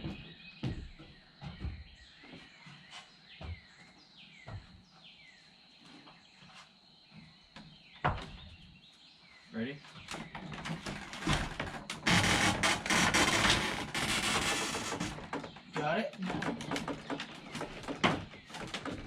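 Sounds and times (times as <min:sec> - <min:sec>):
knocks and thumps: 0:00.0 - 0:02.0, 0:04.4 - 0:04.8, 0:08.0 - 0:08.6, 0:10.0 - 0:19.0
birds chirping: 0:00.0 - 0:19.0.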